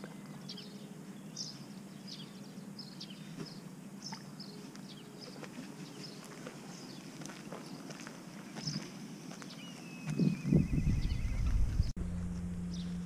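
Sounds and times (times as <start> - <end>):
small birds chirping: 0.0 - 11.9
low hum: 9.8 - 13.0.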